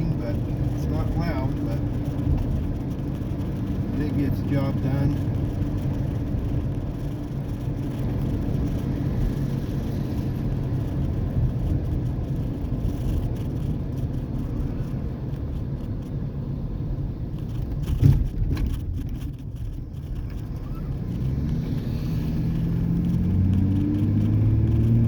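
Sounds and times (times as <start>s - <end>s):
truck exhaust drone: 18.1s - 25.0s.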